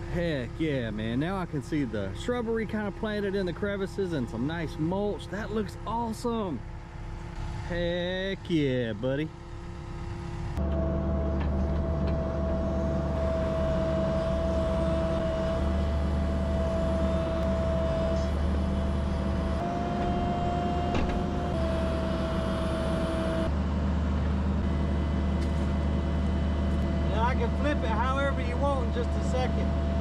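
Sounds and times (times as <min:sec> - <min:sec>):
excavator diesel engine drone: 0:00.0 - 0:30.0
hydraulic whine: 0:09.3 - 0:30.0.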